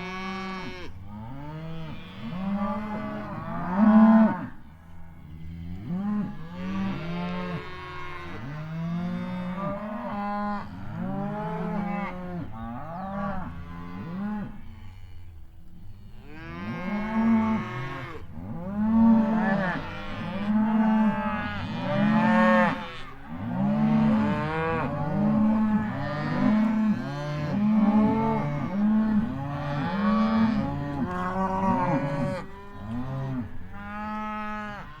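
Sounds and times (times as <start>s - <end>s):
cattle mooing: 16.3s - 35.0s.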